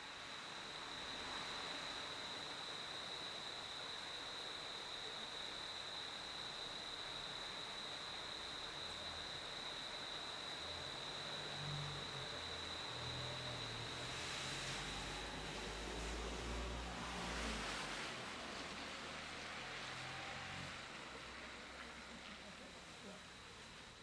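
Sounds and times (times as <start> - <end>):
crickets chirping: 0.0 - 24.0
night ambience hiss: 0.0 - 24.0.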